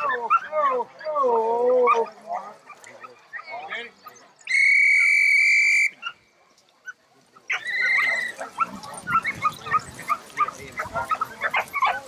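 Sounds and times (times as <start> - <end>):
dog-training whistle blasts: 4.5 - 6.0
puppies yipping and whining: 7.5 - 12.0.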